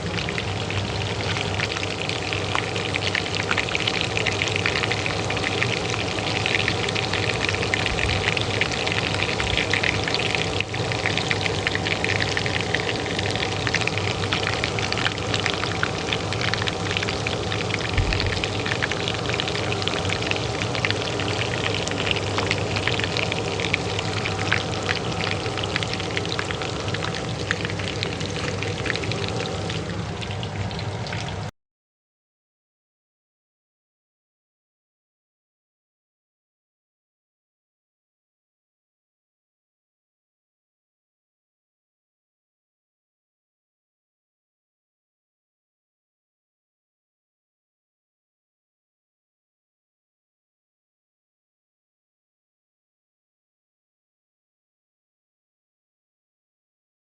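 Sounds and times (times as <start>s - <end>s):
oil sizzling in a pan: 0.0s - 31.5s
range hood fan humming: 0.0s - 31.5s.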